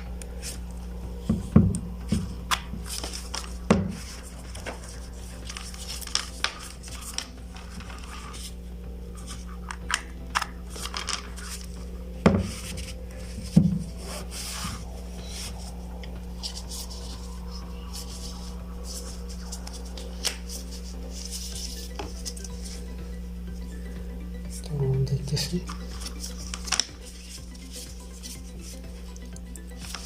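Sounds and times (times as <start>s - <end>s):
steady low hum: 0.0s - 30.0s
hands handling plastic object: 1.2s - 8.6s, 9.2s - 15.7s, 16.4s - 22.8s, 25.6s - 28.8s.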